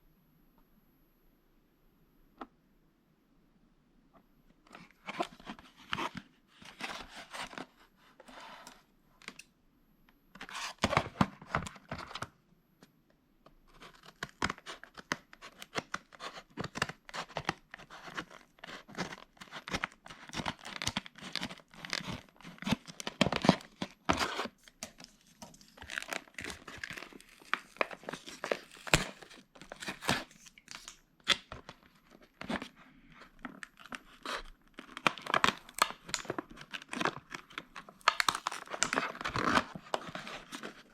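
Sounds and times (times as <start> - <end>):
packaging tearing and crinkling: 13.8 - 40.9.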